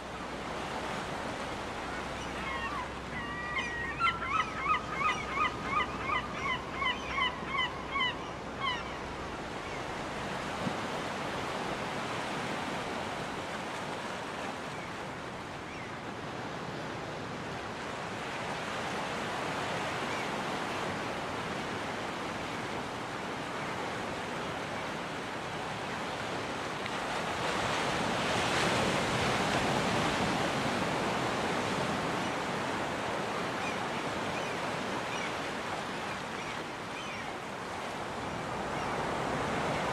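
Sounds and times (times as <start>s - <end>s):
ocean surf on a beach: 0.0s - 39.9s
gull calling: 2.0s - 9.0s.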